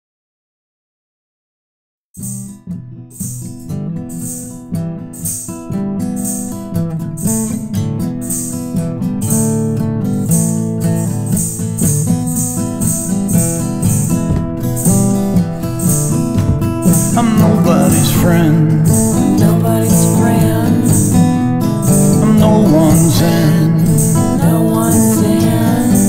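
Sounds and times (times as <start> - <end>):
high percussive shaker: 2.2 - 26.0
strummed acoustic guitar: 2.2 - 26.0.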